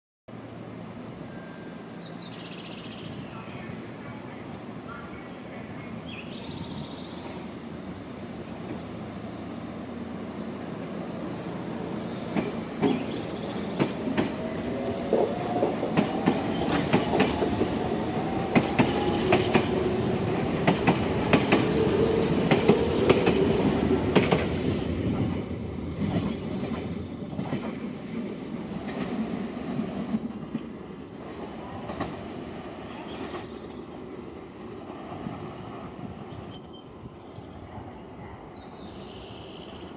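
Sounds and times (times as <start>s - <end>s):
train wheels clacking over rail joints: 13.7s - 17.7s.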